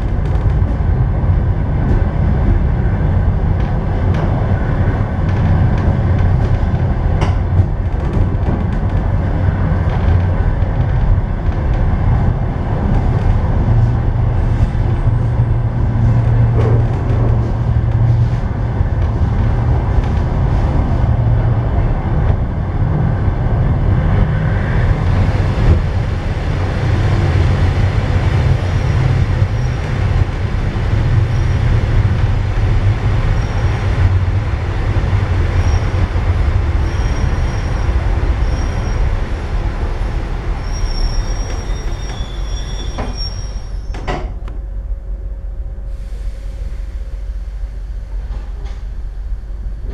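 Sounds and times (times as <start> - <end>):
train wheels rumbling on rails: 0.0 - 49.9
brake squeal: 35.4 - 44.4
low steady hum: 43.7 - 49.9.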